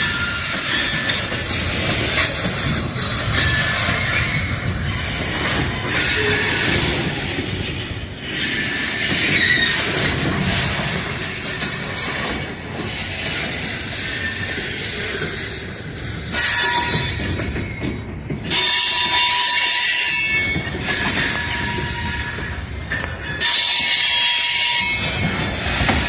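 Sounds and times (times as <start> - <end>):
wheels rumbling on rail: 0.0 - 26.0
high wheel squeals: 8.3 - 11.3, 16.3 - 26.0.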